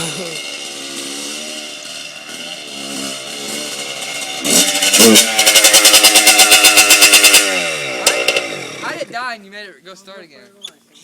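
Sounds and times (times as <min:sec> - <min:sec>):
dirt bike engine revving: 0:00.0 - 0:09.3.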